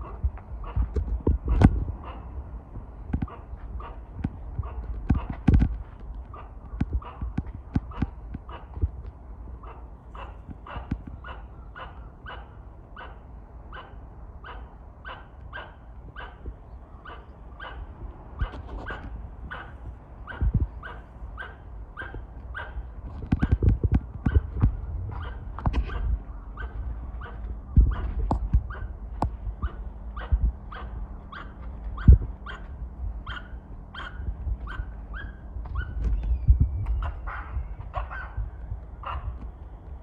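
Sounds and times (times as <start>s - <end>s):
squirrel alarm barks: 6.3s - 8.8s, 9.6s - 29.0s, 29.6s - 36.0s, 37.0s - 39.4s.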